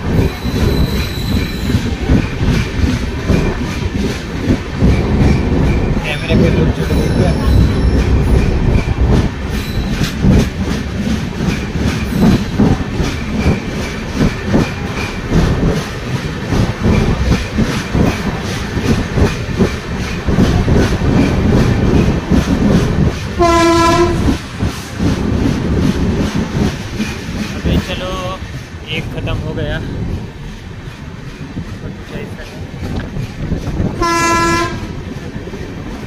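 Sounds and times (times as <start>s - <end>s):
train rumbling through tunnel: 0.0s - 36.0s
wheels clattering over rails: 0.0s - 36.0s
train horn: 23.4s - 24.4s, 34.0s - 35.0s.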